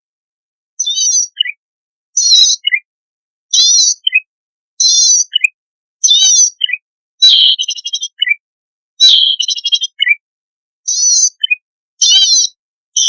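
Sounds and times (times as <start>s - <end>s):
bird song with buzzy trills: 0.8s - 1.6s, 2.2s - 2.9s, 3.5s - 8.4s, 9.0s - 10.2s, 10.8s - 13.0s.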